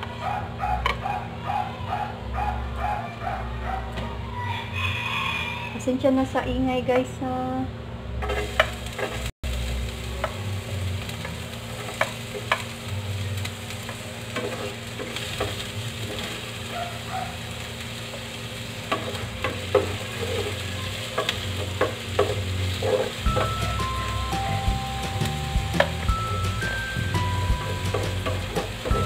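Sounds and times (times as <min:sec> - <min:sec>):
spoon and spatula scraping pan: 0:08.2 - 0:09.3, 0:18.9 - 0:20.6
onion sizzling in oil: 0:08.2 - 0:29.0.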